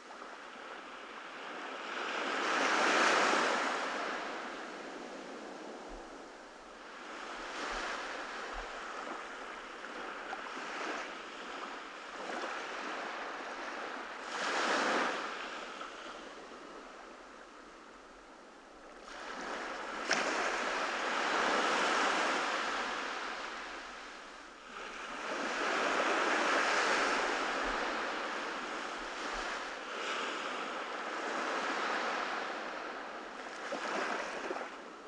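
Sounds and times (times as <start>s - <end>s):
ocean surf breaking on beach: 19.0s - 35.0s.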